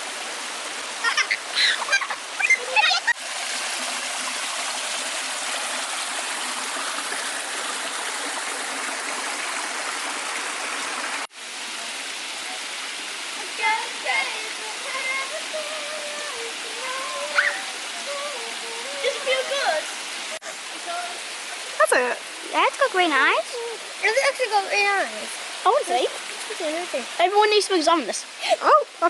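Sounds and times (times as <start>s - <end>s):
stream running over rocks: 0.0s - 29.0s.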